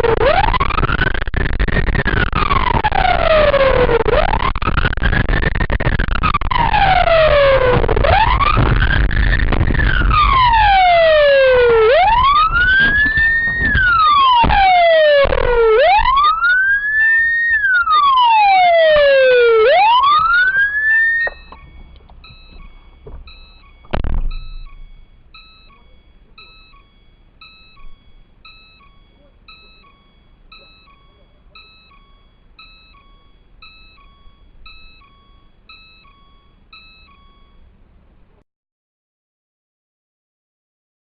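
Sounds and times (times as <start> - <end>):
emergency vehicle siren wailing: 0.0 - 37.6
faint short electronic beep: 21.2 - 37.7
thump: 23.9 - 24.7.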